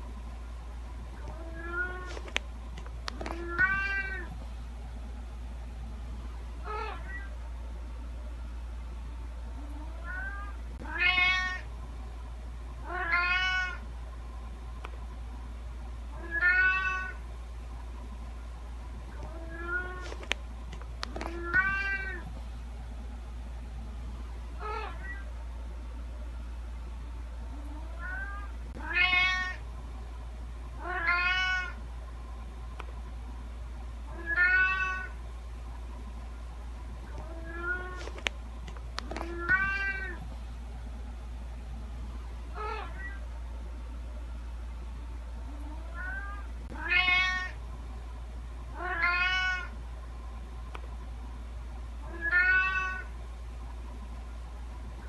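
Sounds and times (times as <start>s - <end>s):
low hum: 0.0s - 55.0s
cat meowing: 3.3s - 4.3s, 10.0s - 11.6s, 12.9s - 13.8s, 16.2s - 17.2s, 28.0s - 29.6s, 30.8s - 31.8s, 34.1s - 35.1s, 39.2s - 40.2s, 45.9s - 47.6s, 48.8s - 49.7s, 52.1s - 53.1s.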